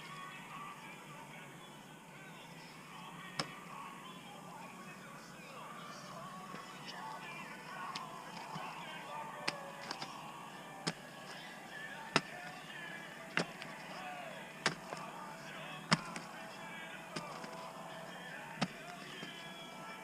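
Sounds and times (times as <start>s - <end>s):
digging tool striking soil and rock: 12.2s - 12.5s, 14.6s - 15.1s, 15.9s - 16.3s, 17.2s - 17.6s.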